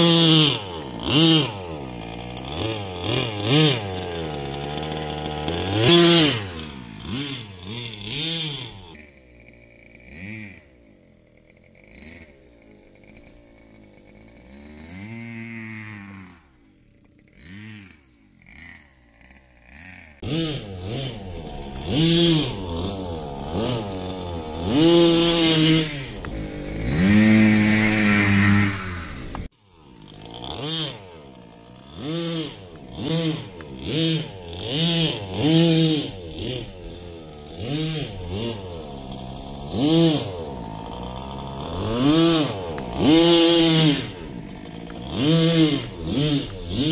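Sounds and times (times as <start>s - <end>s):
rc truck engine revving: 0.0s - 46.9s.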